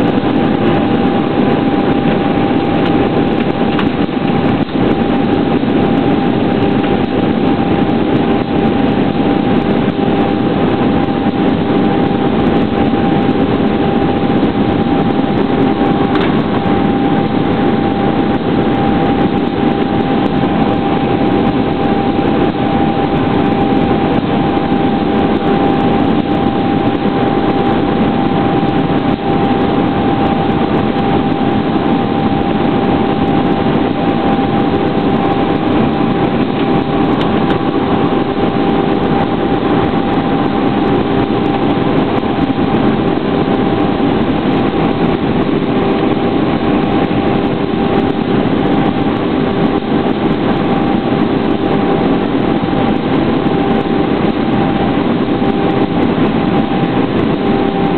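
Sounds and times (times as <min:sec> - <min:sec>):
airplane cabin noise: 0:00.0 - 0:57.9
steady whine: 0:00.0 - 0:57.9.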